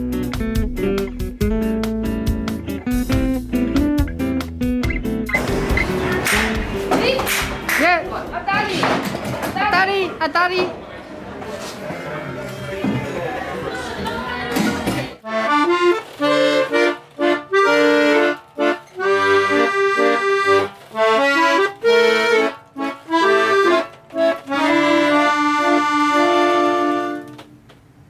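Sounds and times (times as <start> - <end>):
accordion melody: 0.9 - 8.8, 15.2 - 27.5.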